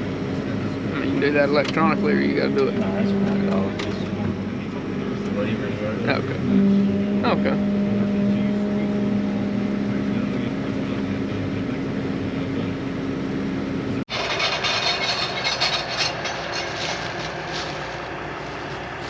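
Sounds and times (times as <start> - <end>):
farm machinery engine drone: 0.0 - 19.0.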